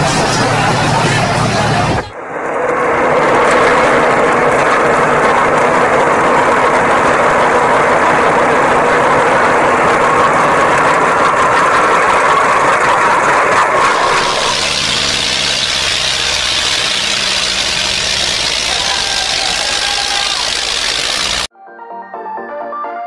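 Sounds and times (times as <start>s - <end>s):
heavy vehicle engine humming: 0.0s - 2.2s, 13.9s - 21.5s.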